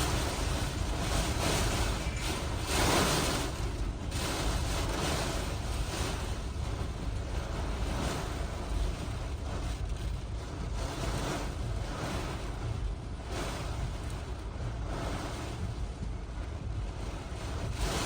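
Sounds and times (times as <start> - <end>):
strong wind gusting: 0.0 - 9.6
wind buffeting microphone: 0.0 - 18.0.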